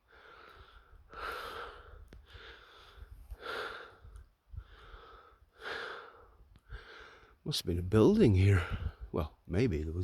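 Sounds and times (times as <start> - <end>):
man breathing heavily: 0.0 - 7.4.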